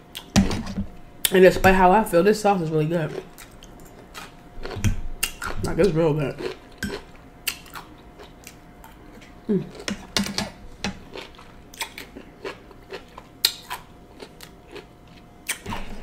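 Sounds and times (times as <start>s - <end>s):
chewing crisp cucumber: 3.1s - 5.7s, 6.3s - 10.0s, 11.1s - 16.0s.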